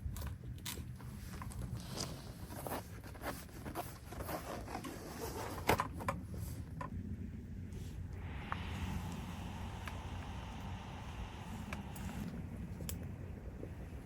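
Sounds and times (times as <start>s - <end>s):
light clicks and scrapes: 0.0s - 7.0s
low steady rumble: 0.0s - 14.0s.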